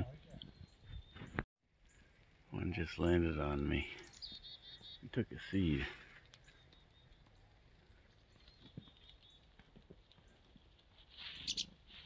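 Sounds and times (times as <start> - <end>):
faint high bird chirps: 4.0 - 5.2, 11.2 - 11.8.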